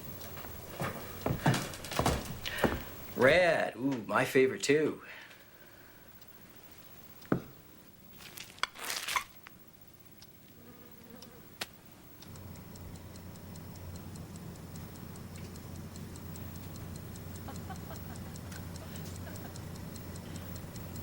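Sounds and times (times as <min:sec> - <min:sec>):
low steady hum: 0:00.0 - 0:21.0
fast clock-like ticking: 0:12.2 - 0:21.0.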